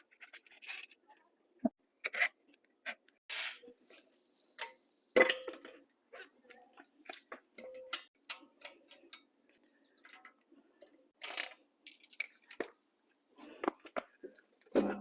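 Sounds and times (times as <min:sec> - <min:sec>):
hand tools clicking and clattering: 0:07.0 - 0:10.4.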